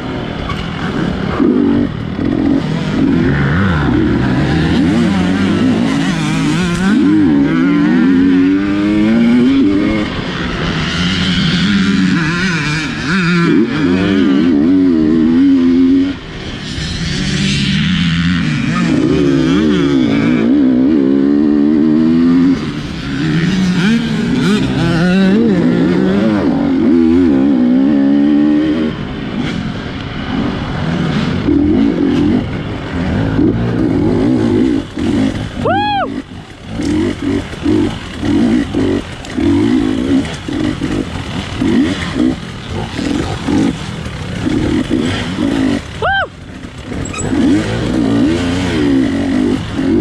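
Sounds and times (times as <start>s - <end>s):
dirt bike engine revving: 0.0s - 50.0s
short high squeal: 47.0s - 47.4s.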